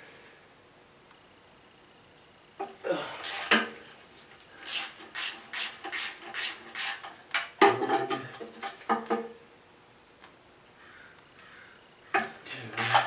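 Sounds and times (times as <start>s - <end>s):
ratchet wrench ratcheting: 3.2s - 3.6s, 4.6s - 7.1s, 12.8s - 13.0s
wrench clack: 12.8s - 13.0s.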